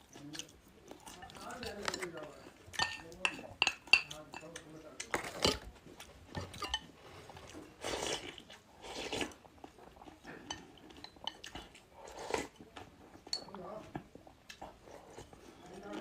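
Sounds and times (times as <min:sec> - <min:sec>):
cutlery clinking on dishes: 0:01.2 - 0:05.7, 0:06.3 - 0:06.9, 0:13.2 - 0:13.6.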